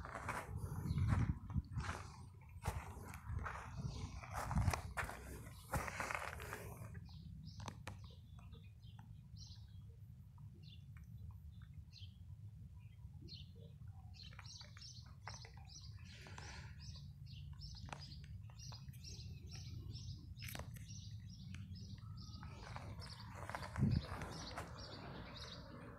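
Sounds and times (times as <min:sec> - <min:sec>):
small birds chirping: 0:00.0 - 0:25.9.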